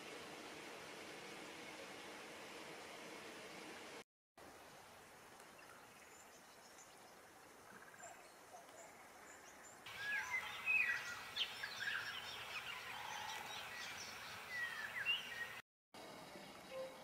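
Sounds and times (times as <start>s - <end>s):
soft outdoor hiss: 0.0s - 17.0s
birds chirping and whistling: 9.9s - 15.6s.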